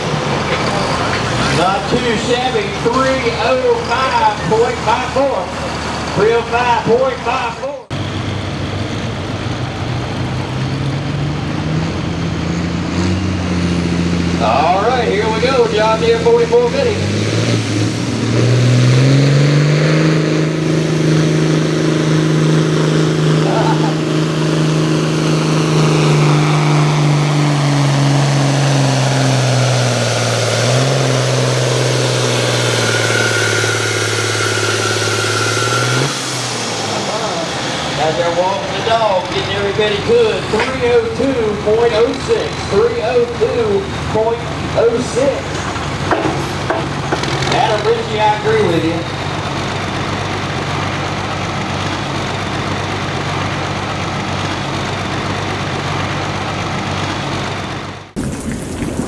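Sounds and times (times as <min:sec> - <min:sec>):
tractor diesel engine revving: 0:00.0 - 0:59.0
thin high whine: 0:31.8 - 0:37.5.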